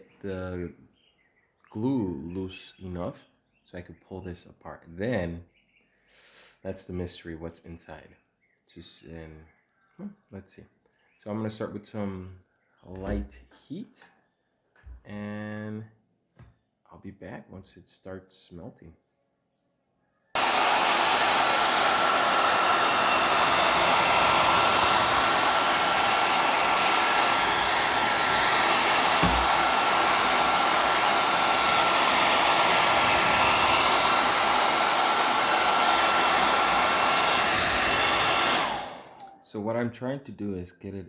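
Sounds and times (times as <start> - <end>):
hair dryer blowing: 20.4 - 39.3
short low thump: 29.2 - 29.6.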